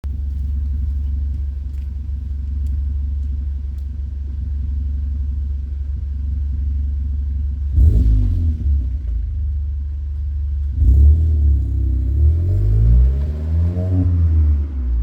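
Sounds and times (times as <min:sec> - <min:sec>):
car exhaust idling rumble: 0:00.0 - 0:13.3
engine revving: 0:07.5 - 0:09.2, 0:10.6 - 0:15.0.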